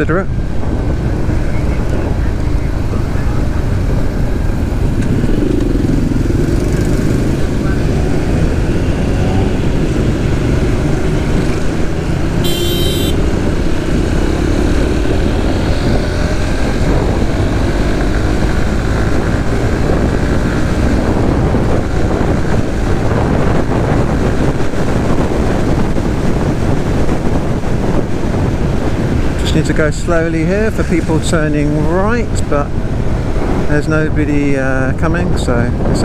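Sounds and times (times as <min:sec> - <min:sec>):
wind noise on microphone: 0:00.0 - 0:36.0
motorcycle engine running: 0:00.3 - 0:33.7
short high-pitched beep: 0:12.4 - 0:13.2.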